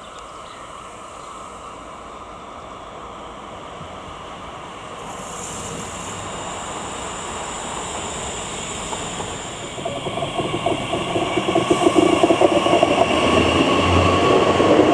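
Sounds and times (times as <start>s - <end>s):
train rumbling: 0.9s - 14.9s.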